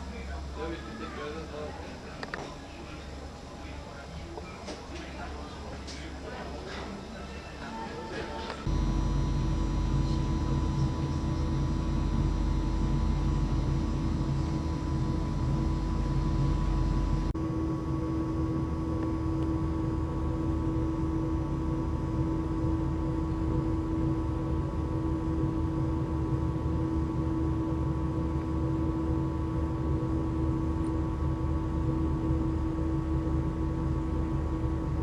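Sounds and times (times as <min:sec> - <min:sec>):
ship machinery humming: 0:00.0 - 0:17.4.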